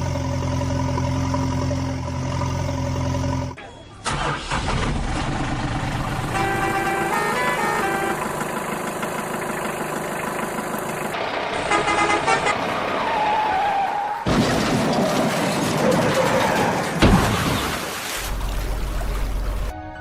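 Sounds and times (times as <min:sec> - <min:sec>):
vehicle engine: 0:00.0 - 0:17.0
vehicle horn: 0:06.3 - 0:08.4, 0:11.6 - 0:12.6.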